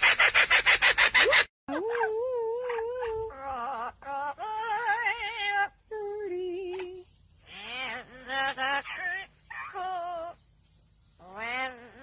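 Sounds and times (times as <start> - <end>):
parrot singing: 6.7 - 12.0.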